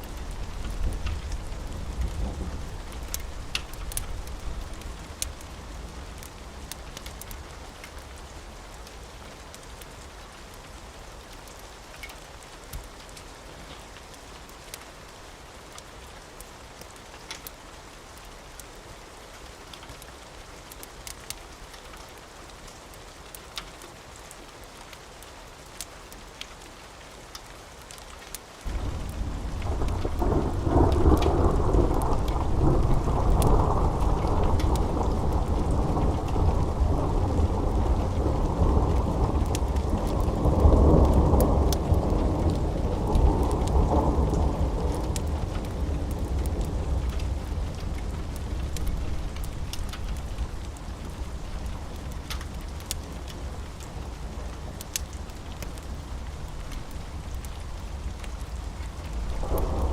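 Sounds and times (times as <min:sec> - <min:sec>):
rain hiss: 0:00.0 - 0:59.9
sharp rain ticks: 0:00.0 - 0:59.9
rolling thunder: 0:00.1 - 0:05.4, 0:28.7 - 0:52.0, 0:56.4 - 0:59.9.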